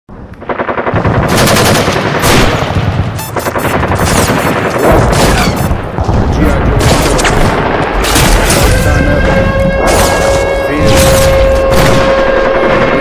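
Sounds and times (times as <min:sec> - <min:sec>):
machine-gun fire: 0:00.4 - 0:13.0.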